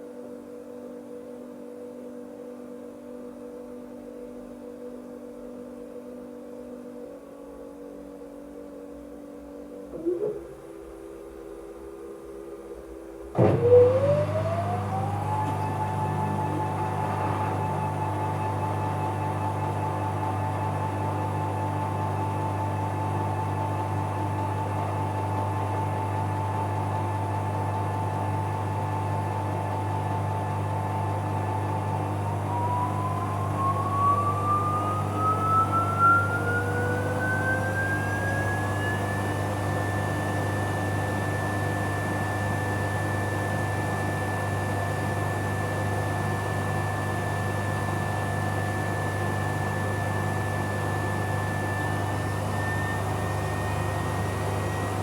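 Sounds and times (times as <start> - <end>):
washing machine motor whine: 0.0 - 55.0
low hum: 32.4 - 40.5.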